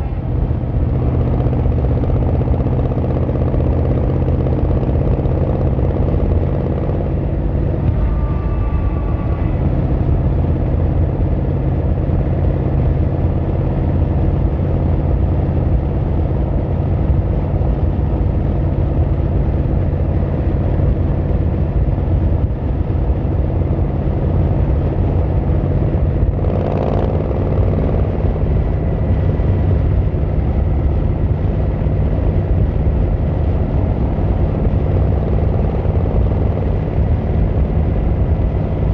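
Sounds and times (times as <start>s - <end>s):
motorcycle engine running: 0.0s - 38.9s
faint high tone: 7.8s - 10.0s.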